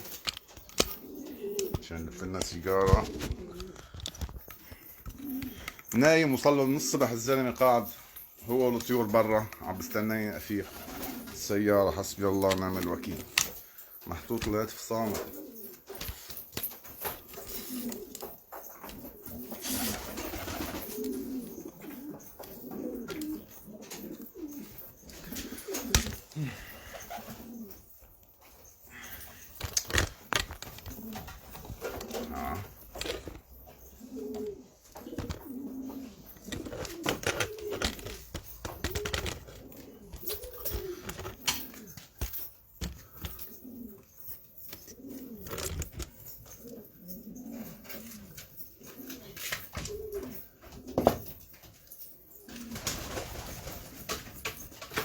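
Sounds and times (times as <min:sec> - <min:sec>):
pigeons cooing: 0:00.0 - 0:55.0
sharp clicks and knocks: 0:29.6 - 0:33.5, 0:36.3 - 0:43.4.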